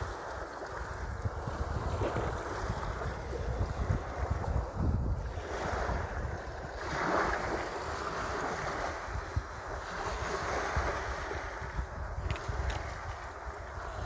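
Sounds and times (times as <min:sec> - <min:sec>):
sea waves washing in: 0:00.0 - 0:14.0
wind buffeting microphone: 0:00.0 - 0:14.0.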